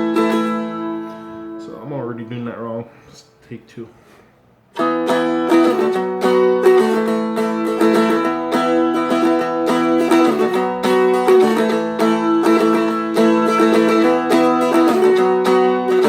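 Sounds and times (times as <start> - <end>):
dulcimer strummed: 0.0 - 2.5, 4.7 - 16.0.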